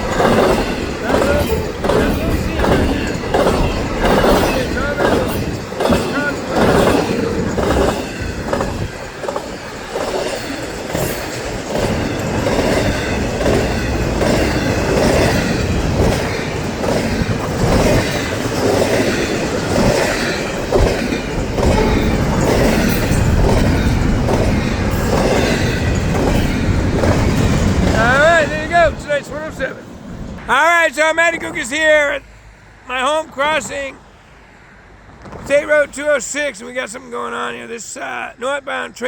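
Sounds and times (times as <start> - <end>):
wheel squeal: 0.0 - 28.2
wheels clickety-clack on rail joints: 0.0 - 32.2, 32.9 - 34.1, 34.9 - 39.0
freight train rumbling past: 0.0 - 39.0.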